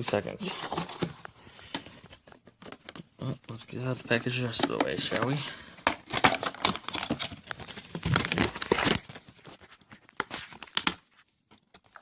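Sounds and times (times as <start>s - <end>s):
packaging crinkling and tearing: 6.0s - 12.0s.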